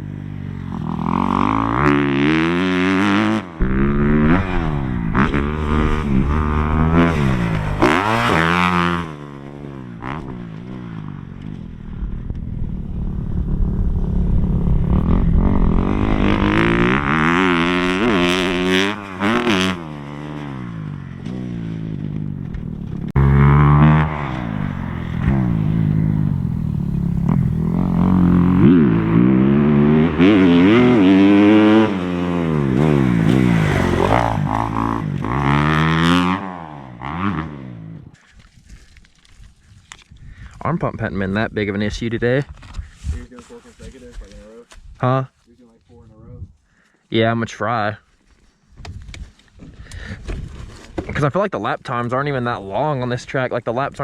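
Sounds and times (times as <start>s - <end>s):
dirt bike engine revving: 0.7s - 22.2s, 22.8s - 37.9s.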